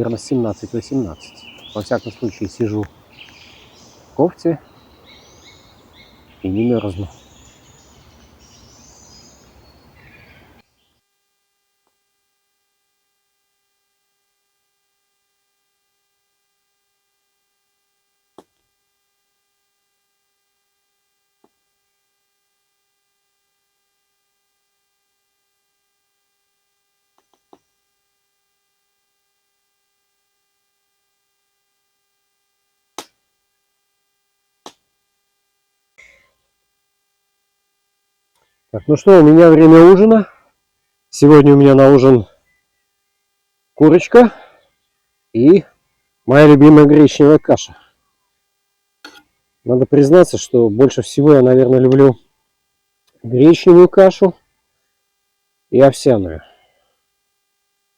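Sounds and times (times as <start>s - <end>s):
birdsong: 0.0s - 11.0s
faint steady hum: 0.0s - 57.9s
outdoor ambience: 0.0s - 57.9s.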